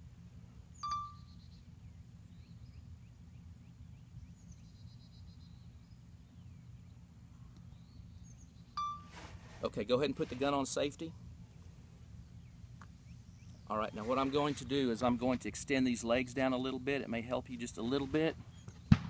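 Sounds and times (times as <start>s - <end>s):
songbirds calling: 0.5s - 9.2s, 10.7s - 19.0s
sharp short ringing note: 8.8s - 9.2s.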